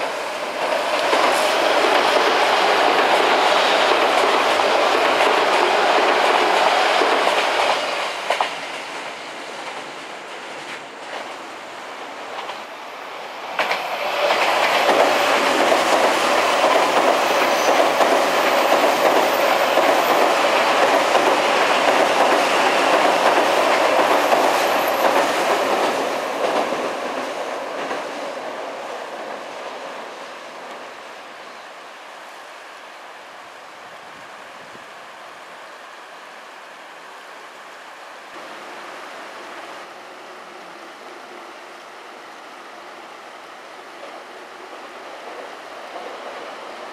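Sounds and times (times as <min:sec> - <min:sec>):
train wheels clattering on bridge: 0:00.0 - 0:11.5, 0:13.5 - 0:30.8.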